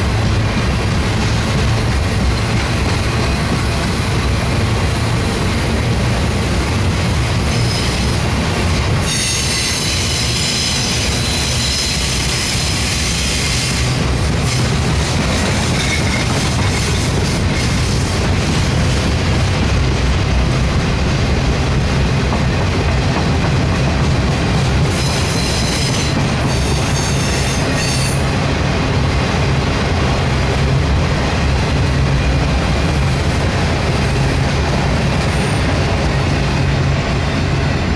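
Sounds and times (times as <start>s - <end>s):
freight train wheels rumbling: 0.0s - 37.9s
high wheel squeal: 9.0s - 14.7s, 24.9s - 28.3s.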